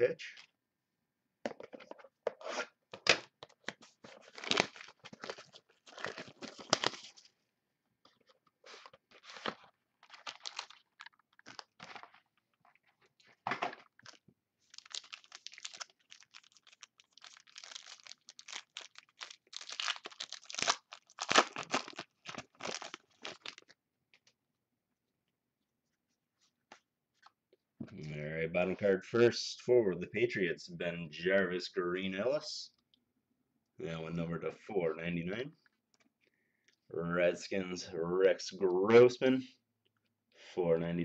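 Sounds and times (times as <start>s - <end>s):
wrapper and cardboard tearing: 4.1s - 7.3s, 8.7s - 12.3s, 13.9s - 23.7s.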